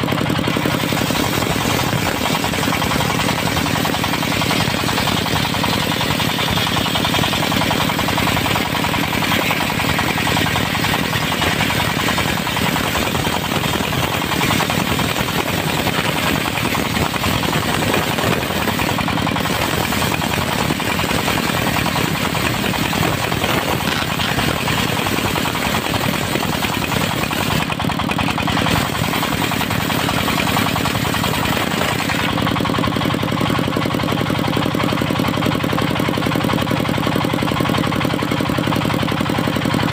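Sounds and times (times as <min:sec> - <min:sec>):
diesel engine running: 0:00.0 - 0:39.9
circular saw blade cutting wood: 0:00.4 - 0:32.4.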